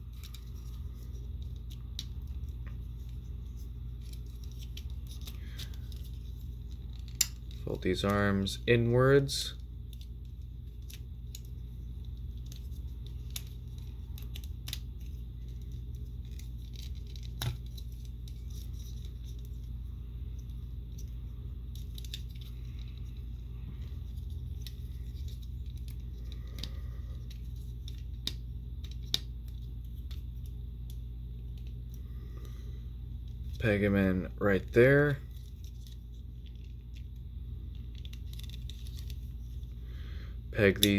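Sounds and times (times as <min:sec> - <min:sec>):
steady low hum: 0:00.0 - 0:40.9
plastic parts clicking and snapping: 0:04.0 - 0:07.6, 0:09.9 - 0:19.5.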